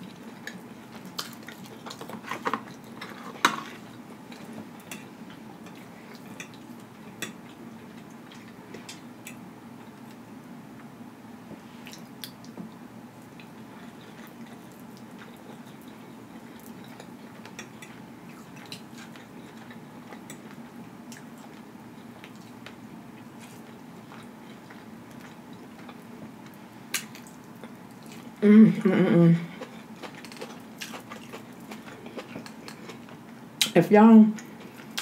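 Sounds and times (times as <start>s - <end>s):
person chewing food: 0.0s - 10.2s, 13.2s - 28.4s, 29.5s - 33.4s, 34.4s - 35.0s
faint low hum: 0.0s - 35.0s.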